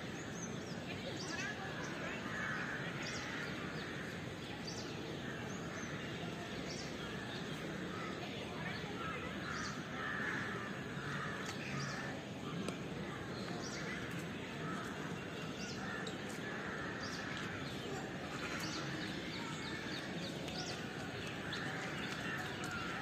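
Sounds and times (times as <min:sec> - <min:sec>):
birds cawing and chirping: 0:07.1 - 0:12.3, 0:13.6 - 0:23.0.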